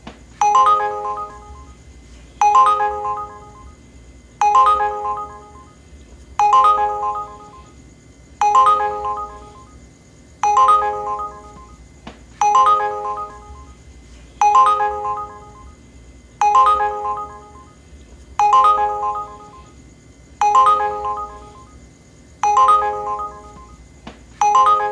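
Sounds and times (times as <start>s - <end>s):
app alert chime: 0.4s - 1.8s, 2.4s - 3.7s, 4.4s - 5.7s, 6.4s - 7.7s, 8.4s - 9.7s, 10.4s - 11.7s, 12.4s - 13.8s, 14.4s - 15.7s, 16.4s - 17.7s, 18.4s - 19.7s, 20.4s - 21.7s, 22.4s - 23.7s, 24.4s - 24.9s.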